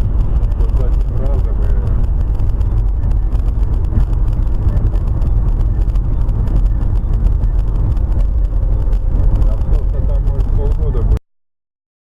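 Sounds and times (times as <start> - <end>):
vehicle engine and road rumble: 0.0 - 11.2.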